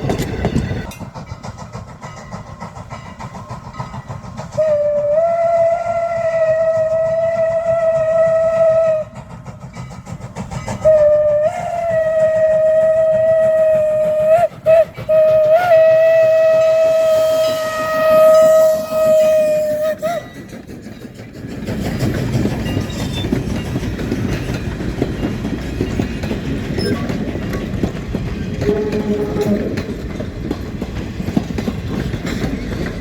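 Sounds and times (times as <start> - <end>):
train rumbling past: 0.0 - 33.0
steam whistle blast: 4.6 - 9.2, 10.8 - 20.3, 28.6 - 29.8
wheels clattering over rail joints: 17.6 - 33.0.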